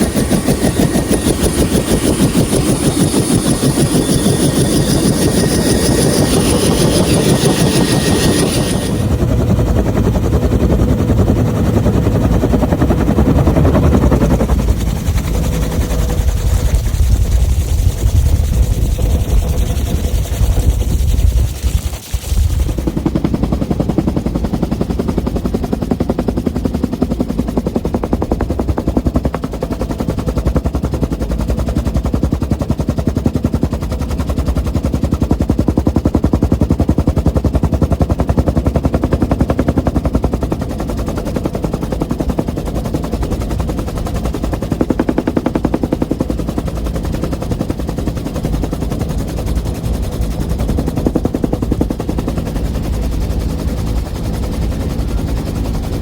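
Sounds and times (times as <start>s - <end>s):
helicopter engine drone: 0.0s - 56.0s
helicopter rotor chopping: 0.0s - 56.0s.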